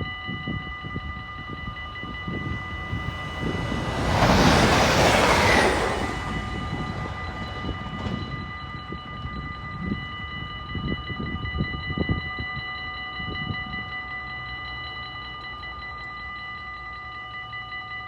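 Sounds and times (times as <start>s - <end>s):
level crossing warning bell: 0.0s - 18.0s
passing train rumble: 0.5s - 11.7s.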